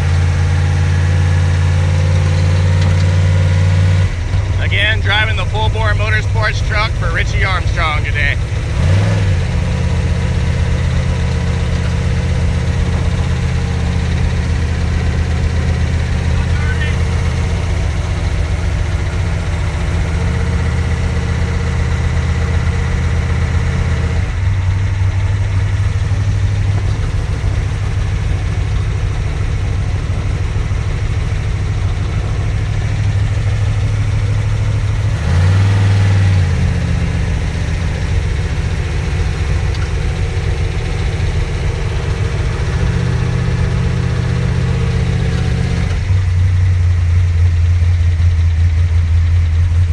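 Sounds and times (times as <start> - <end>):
race truck engine idling: 0.0 - 49.9.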